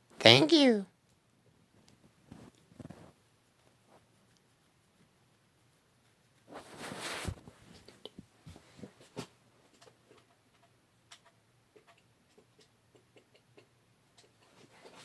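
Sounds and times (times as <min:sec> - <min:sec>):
faint clicks and taps: 0:01.0 - 0:05.4, 0:07.4 - 0:15.0.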